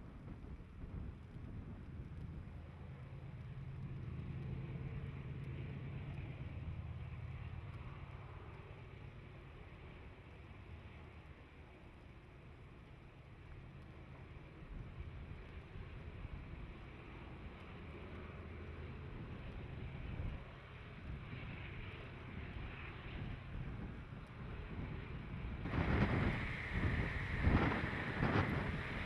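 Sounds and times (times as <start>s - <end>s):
wind on microphone: 23.2s - 29.0s
locomotive engine rumble: 24.1s - 29.0s
train rushing past: 25.6s - 29.0s.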